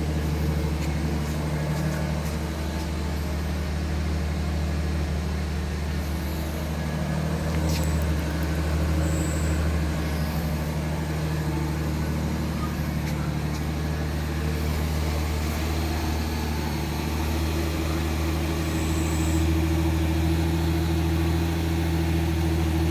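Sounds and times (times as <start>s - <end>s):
car engine idling: 0.0s - 22.9s.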